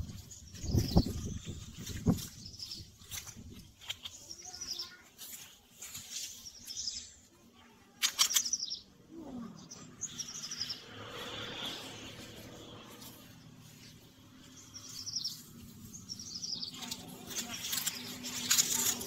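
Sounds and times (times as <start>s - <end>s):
short rustle: 0.0s - 7.3s
small birds chirping: 0.0s - 19.0s.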